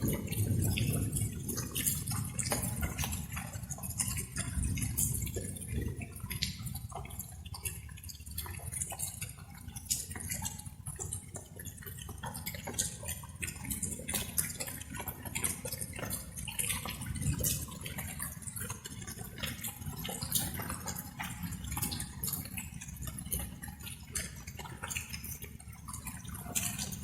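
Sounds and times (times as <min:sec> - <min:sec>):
raindrops pattering: 0:00.0 - 0:27.0.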